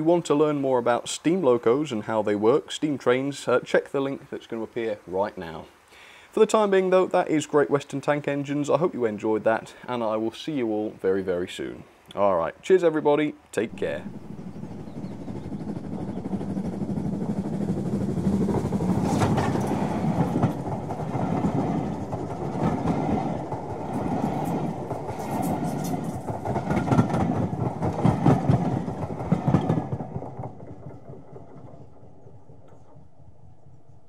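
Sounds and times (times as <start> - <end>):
wheels clattering over rail joints: 13.6 - 33.6
train rumbling past: 13.6 - 34.0.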